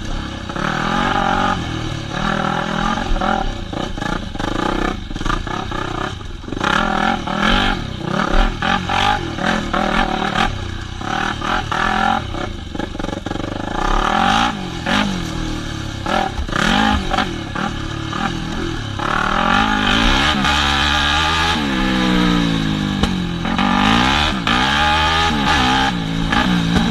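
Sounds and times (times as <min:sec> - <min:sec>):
dirt bike engine revving: 0:00.0 - 0:26.9
bike rattling and knocking: 0:02.2 - 0:15.4, 0:25.5 - 0:26.9.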